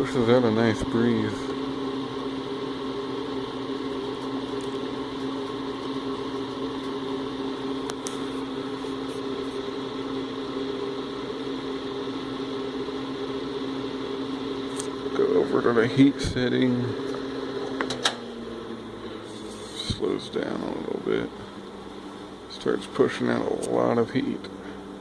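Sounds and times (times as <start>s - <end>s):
heater fan humming: 0.0s - 25.0s.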